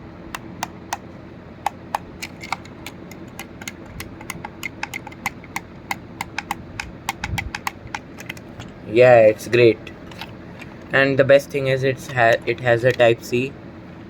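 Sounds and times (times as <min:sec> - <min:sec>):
speaker buttons clicking: 0:01.6 - 0:08.7.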